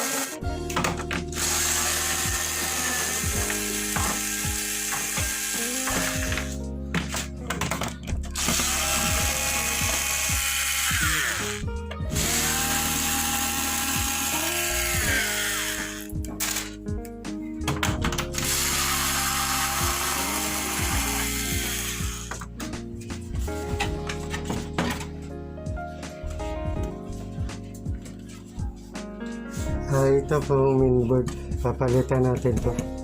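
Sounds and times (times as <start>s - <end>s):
power screwdriver whirring: 0.0s - 0.4s, 1.3s - 6.6s, 8.4s - 16.8s, 18.4s - 22.4s
background music: 0.0s - 33.0s.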